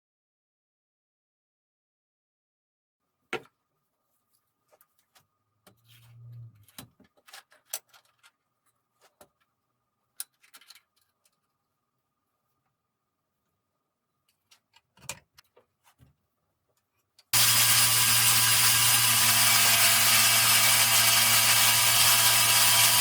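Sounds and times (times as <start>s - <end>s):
brief low hum: 5.9s - 6.7s.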